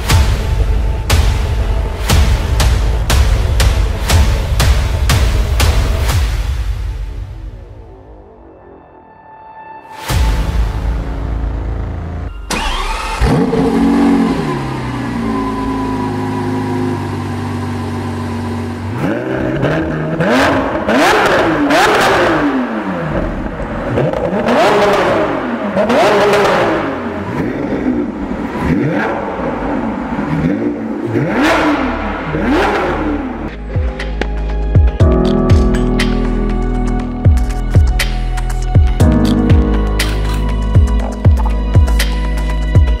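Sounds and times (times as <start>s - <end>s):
car engine revving: 10.7s - 34.6s.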